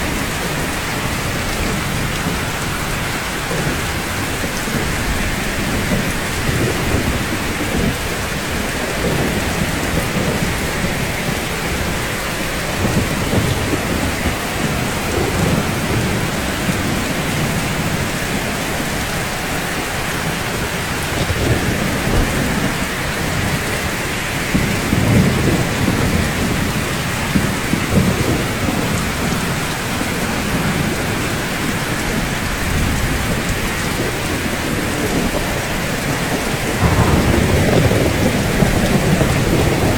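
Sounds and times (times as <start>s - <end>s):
rain falling on rooftops: 0.0s - 39.9s
low rumbles: 36.7s - 39.9s.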